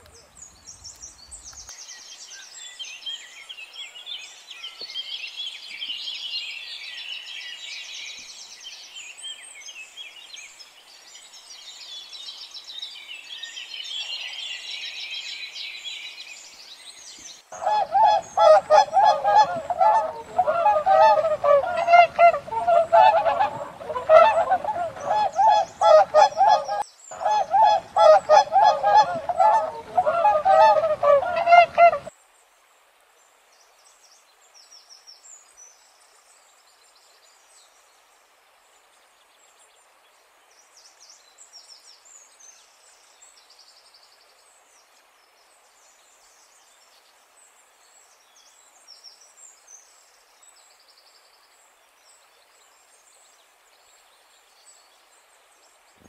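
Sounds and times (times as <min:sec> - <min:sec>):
geese honking: 0:17.6 - 0:32.1.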